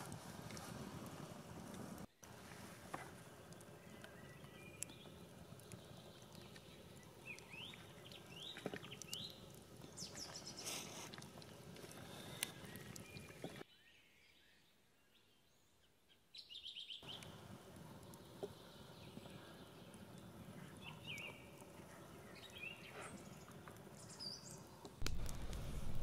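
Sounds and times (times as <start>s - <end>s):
soft clicks and rustles: 0.0s - 4.2s
faint outdoor background hiss: 0.0s - 26.0s.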